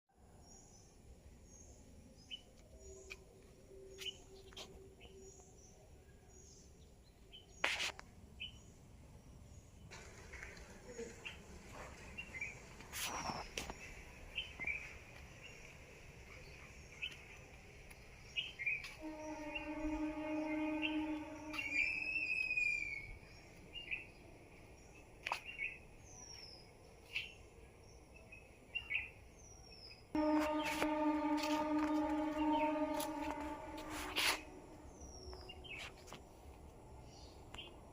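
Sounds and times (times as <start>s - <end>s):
brief loud noise: 30.2s - 34.8s
steady droning tone: 30.2s - 35.3s.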